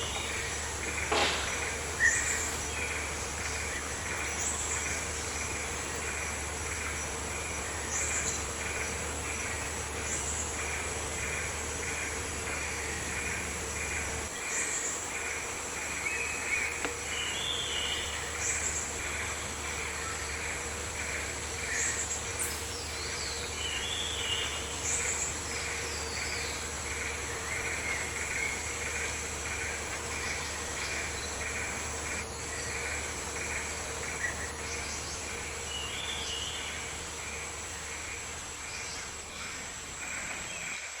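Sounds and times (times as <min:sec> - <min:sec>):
high insect whine: 0:00.0 - 0:41.0
insects chirring in pulses: 0:00.0 - 0:41.0.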